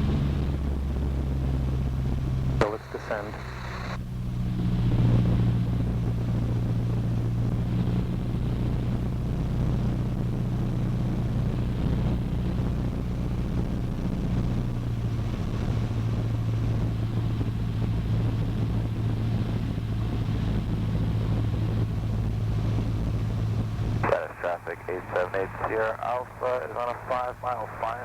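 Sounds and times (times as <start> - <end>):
airplane engine and propeller droning: 0.0 - 28.0.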